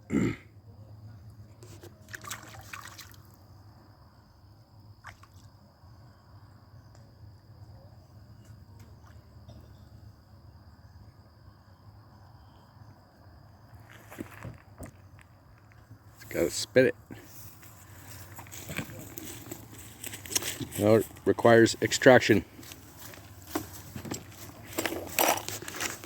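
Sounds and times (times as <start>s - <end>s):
water splashing and dripping: 2.0s - 3.4s.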